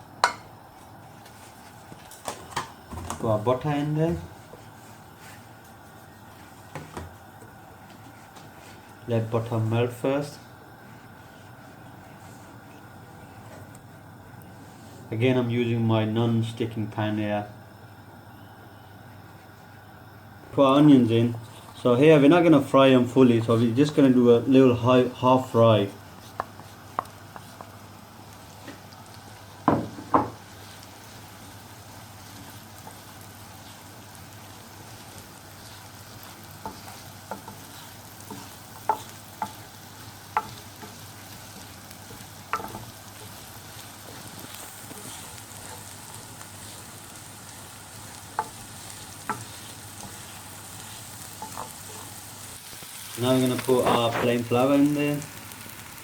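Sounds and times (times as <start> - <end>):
onions sizzling in a pan: 0.0 - 15.4, 16.4 - 56.0.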